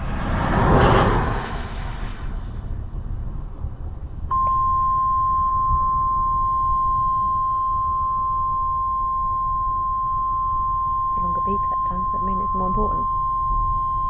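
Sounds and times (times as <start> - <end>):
constant low rumble: 1.3 - 14.0
steady high alarm beep: 4.3 - 14.0.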